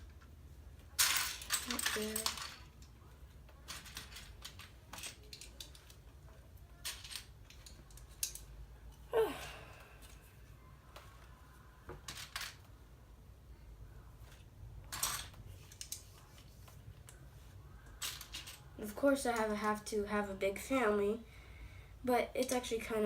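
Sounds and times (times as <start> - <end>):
plastic toy bricks clicking: 3.6 - 6.0, 6.8 - 8.5.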